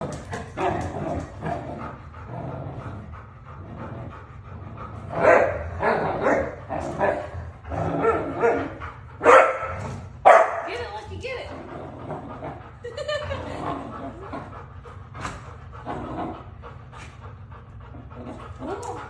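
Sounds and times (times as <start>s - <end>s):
dog barking and yipping: 5.2s - 5.6s, 8.0s - 10.8s.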